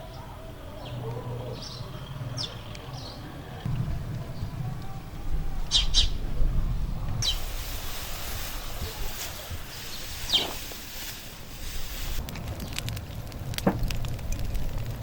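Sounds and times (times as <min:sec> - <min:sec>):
small birds chirping: 0:00.0 - 0:03.5, 0:07.2 - 0:07.8, 0:08.6 - 0:12.8
low rumble: 0:03.6 - 0:15.0
steady hiss: 0:07.2 - 0:12.3.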